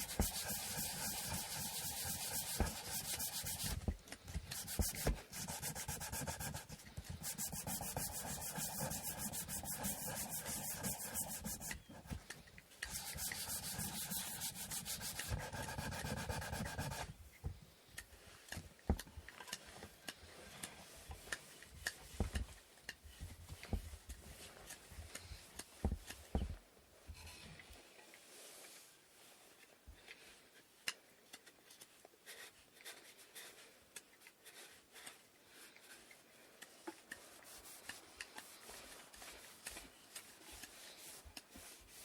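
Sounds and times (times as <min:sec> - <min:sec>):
sandpaper rubbing wood: 0:00.0 - 0:12.2, 0:12.9 - 0:17.1.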